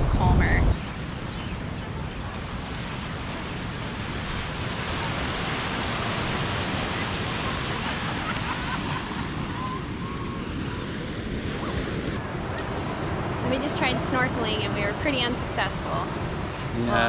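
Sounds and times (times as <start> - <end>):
ocean waves breaking on shore: 0.0 - 17.0.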